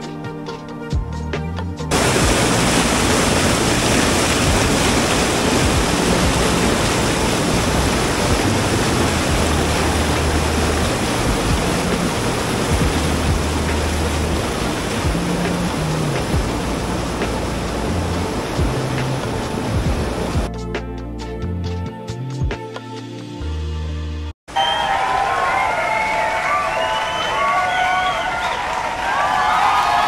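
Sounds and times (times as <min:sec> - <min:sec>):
waterfall rushing: 0:01.9 - 0:20.5.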